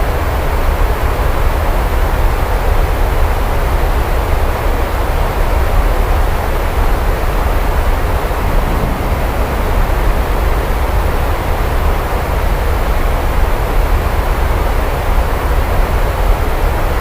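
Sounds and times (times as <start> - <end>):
deep continuous rumble: 6.4 - 13.6
heavy rain falling: 7.8 - 12.7.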